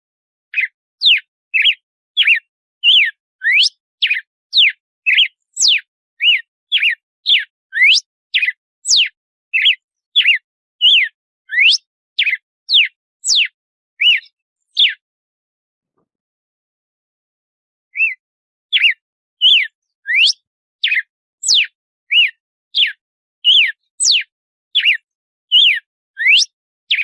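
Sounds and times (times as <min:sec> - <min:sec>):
bird singing whistled notes: 0:00.5 - 0:15.0, 0:17.9 - 0:27.0.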